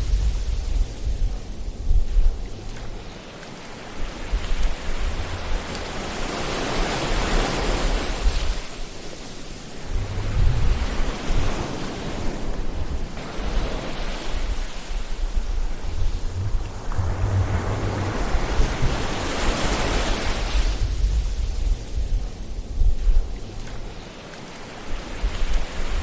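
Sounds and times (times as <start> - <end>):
ocean waves breaking on shore: 0.0 - 26.0
low rumble: 9.8 - 11.8, 14.5 - 23.8.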